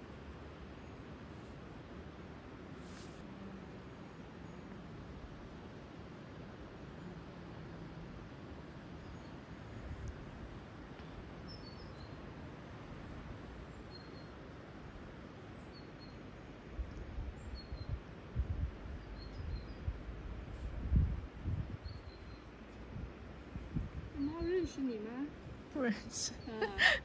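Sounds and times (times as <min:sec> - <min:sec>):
steady background hiss: 0:00.0 - 0:27.0.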